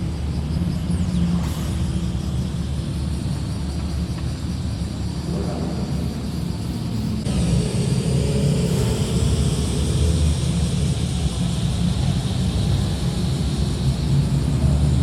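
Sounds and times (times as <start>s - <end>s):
car exhaust rumbling: 3.2s - 15.0s.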